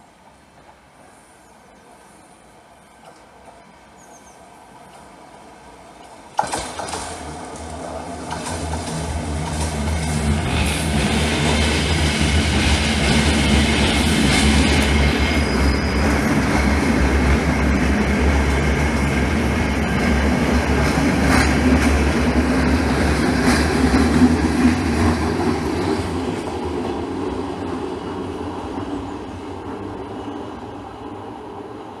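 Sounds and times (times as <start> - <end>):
train low rumble: 0.0 - 32.0
wheels squealing: 7.6 - 17.0.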